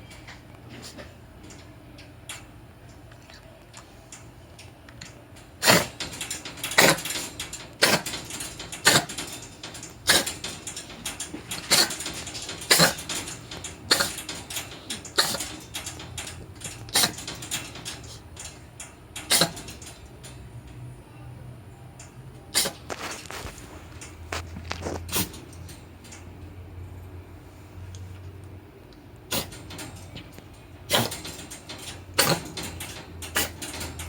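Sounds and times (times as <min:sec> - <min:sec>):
cat coughing harshly: 0:05.6 - 0:09.3, 0:10.0 - 0:10.4, 0:11.6 - 0:15.6, 0:16.9 - 0:17.3, 0:19.3 - 0:19.8, 0:22.5 - 0:22.9, 0:25.1 - 0:25.4, 0:29.3 - 0:29.7, 0:30.9 - 0:31.3, 0:32.2 - 0:32.6, 0:33.4 - 0:33.6.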